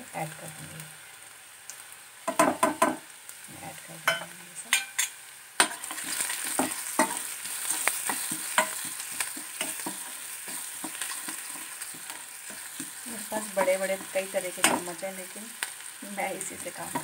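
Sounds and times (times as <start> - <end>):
onions sizzling in a pan: 0.0 - 17.0
metal spoon scraping a pan: 4.0 - 15.0.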